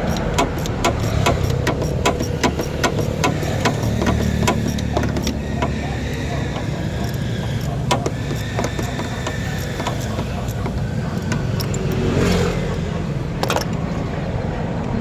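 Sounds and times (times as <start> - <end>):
sharp clicks: 0.0 - 13.9
car engine idling: 0.0 - 15.0.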